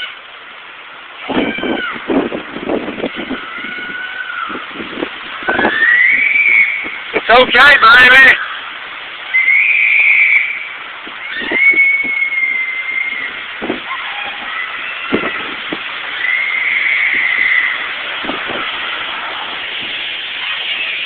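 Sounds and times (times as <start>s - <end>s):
wind buffeting microphone: 1.1s - 8.9s, 10.6s - 21.0s
strong wind rushing: 1.2s - 8.5s, 9.9s - 21.0s.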